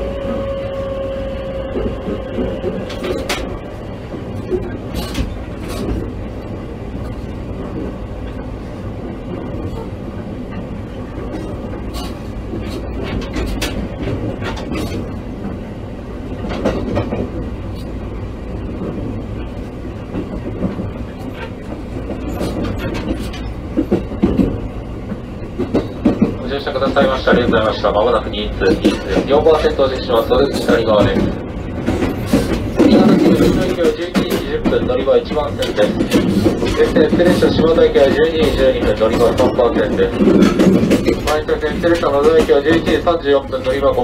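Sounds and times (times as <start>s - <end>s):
wheels rumbling on rail: 0.0s - 44.0s
wheels clicking over rail joints: 9.2s - 18.0s, 18.7s - 44.0s.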